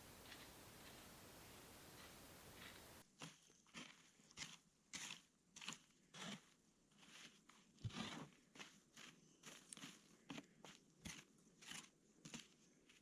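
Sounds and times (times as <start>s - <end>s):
footsteps crunching dry leaves: 0.0s - 3.0s
steady hiss: 0.0s - 3.0s.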